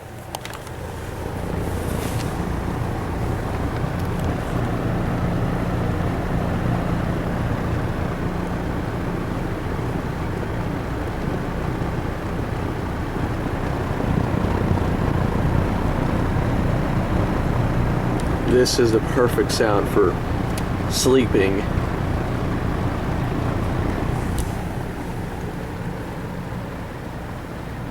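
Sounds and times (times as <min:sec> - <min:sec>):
box fan air rushing: 0:00.0 - 0:07.2, 0:22.9 - 0:26.2
low motor hum: 0:00.0 - 0:27.9.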